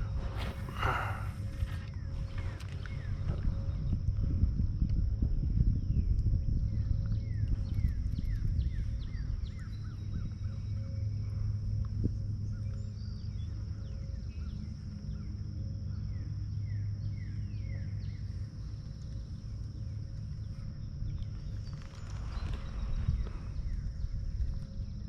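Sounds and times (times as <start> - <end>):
steady low rumble: 0.0 - 25.0
small birds chirping: 5.7 - 25.0.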